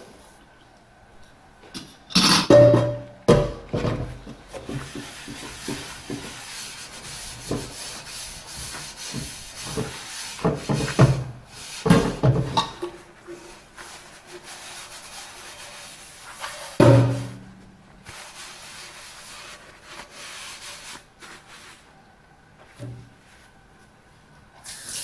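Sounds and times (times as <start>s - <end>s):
dishes being scrubbed: 2.2s - 21.9s
dishware knocking: 2.5s - 4.0s, 16.8s - 17.5s.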